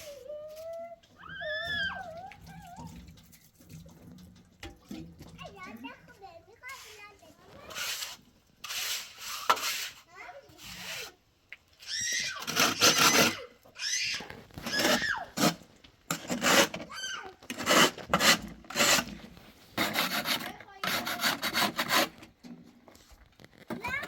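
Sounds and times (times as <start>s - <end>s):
rasping scraping strokes: 6.6s - 11.2s, 12.4s - 13.5s, 14.6s - 24.0s.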